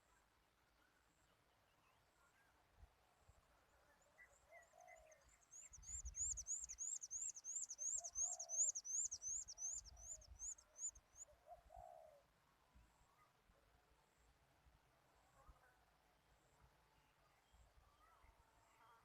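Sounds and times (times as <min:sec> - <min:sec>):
bird cooing: 0:07.8 - 0:10.2, 0:11.4 - 0:12.2.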